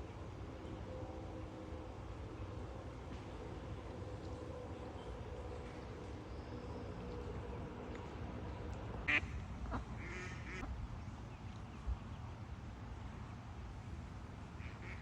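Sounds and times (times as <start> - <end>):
low outdoor rumble: 0.0 - 15.0
ducks quacking: 9.1 - 10.7.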